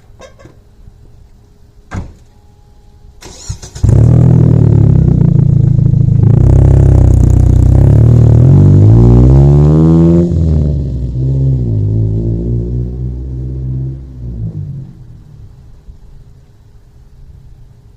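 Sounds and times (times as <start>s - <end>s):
car exhaust low note: 2.8s - 16.6s.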